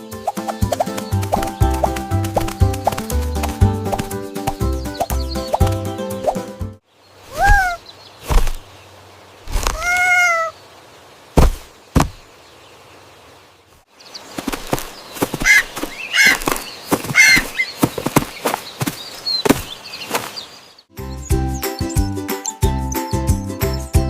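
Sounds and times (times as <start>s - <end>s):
quick chirps and clicks: 0.2s - 6.4s
cartoon animal cry: 7.3s - 7.8s, 9.7s - 10.6s
sharp knocks: 11.4s - 12.2s.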